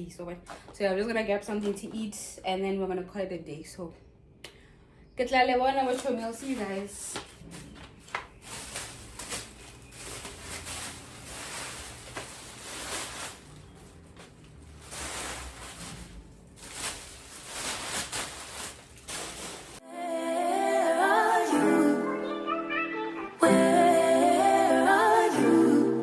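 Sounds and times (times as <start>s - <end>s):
rustling of things handled: 5.7s - 19.8s.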